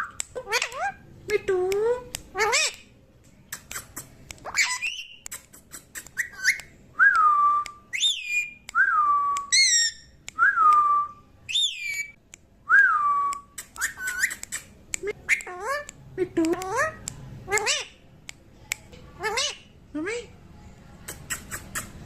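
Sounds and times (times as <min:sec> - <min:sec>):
parrot chirps: 0:00.0 - 0:01.1, 0:01.9 - 0:02.9, 0:03.5 - 0:06.7, 0:07.9 - 0:08.7, 0:09.4 - 0:10.2, 0:11.5 - 0:12.2, 0:13.4 - 0:16.0, 0:16.6 - 0:18.0, 0:19.2 - 0:20.3, 0:21.1 - 0:22.0
parrot whistling: 0:06.0 - 0:06.7, 0:07.6 - 0:12.2.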